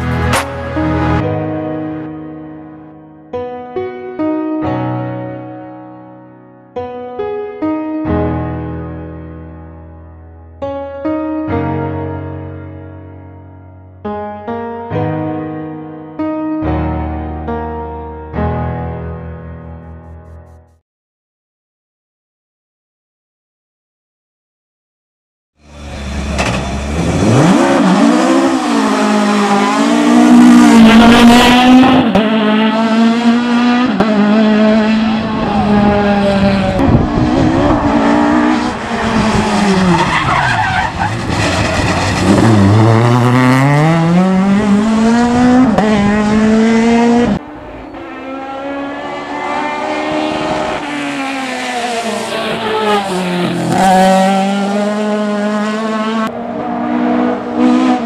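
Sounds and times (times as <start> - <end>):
race car engine at full throttle: 25.6 - 58.0.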